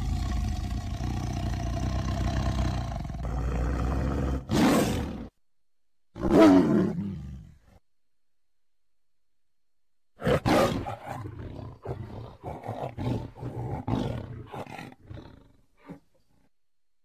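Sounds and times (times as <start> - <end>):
tiger roaring: 0.0 - 5.3, 6.2 - 7.6, 10.2 - 16.2.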